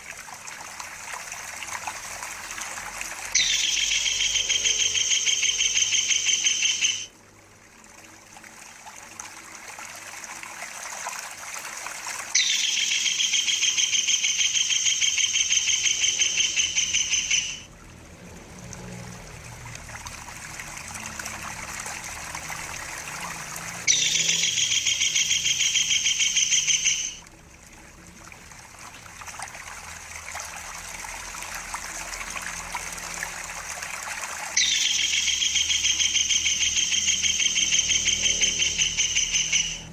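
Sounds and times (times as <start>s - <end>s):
water trickling softly: 0.0s - 39.9s
kingfisher rolling trill: 3.3s - 7.1s, 12.3s - 17.7s, 20.6s - 27.2s, 34.6s - 39.9s.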